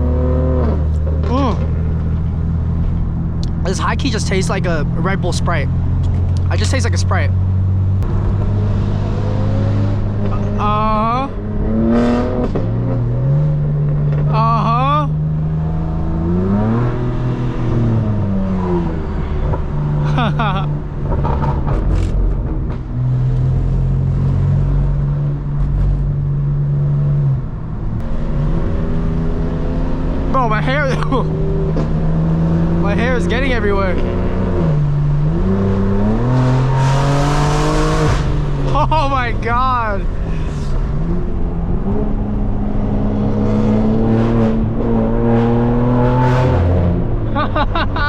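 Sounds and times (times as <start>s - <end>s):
car engine droning: 0.0s - 48.0s
exhaust cracks: 0.6s - 14.4s, 18.1s - 26.6s.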